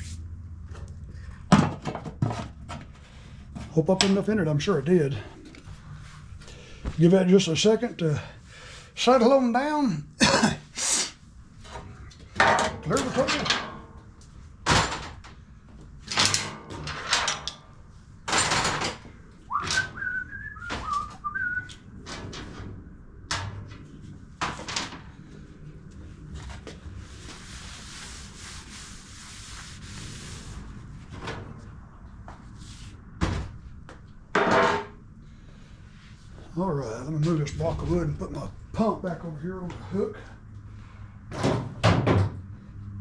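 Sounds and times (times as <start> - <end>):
person whistling: 19.5 - 21.8.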